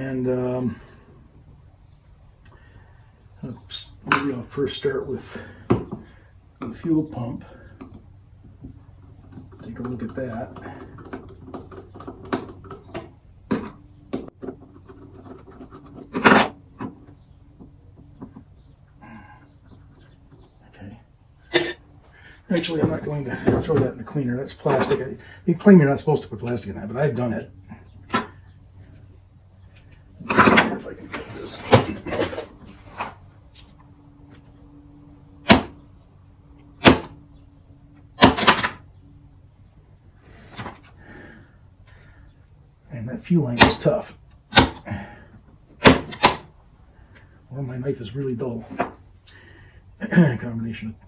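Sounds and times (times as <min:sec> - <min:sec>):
faint steady hum: 0:00.0 - 0:51.0
light knocks and clicks of parts: 0:03.4 - 0:21.2, 0:22.0 - 0:25.4, 0:48.1 - 0:49.4
tools clacking on a workbench: 0:30.3 - 0:33.2.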